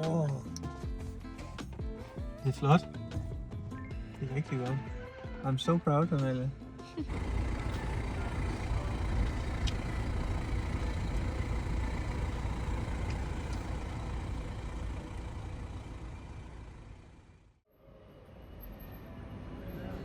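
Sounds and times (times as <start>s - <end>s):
vehicle low rumble: 7.1s - 17.6s.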